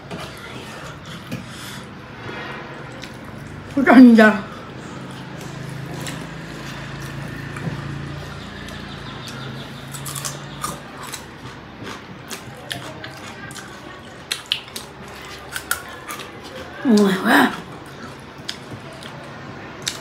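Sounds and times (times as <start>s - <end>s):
wet chewing and lip smacks: 5.1s - 16.8s, 17.9s - 20.0s.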